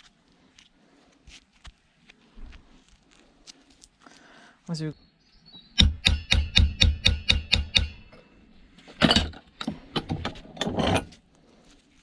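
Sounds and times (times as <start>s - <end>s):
hacksaw cutting metal: 5.8s - 8.2s.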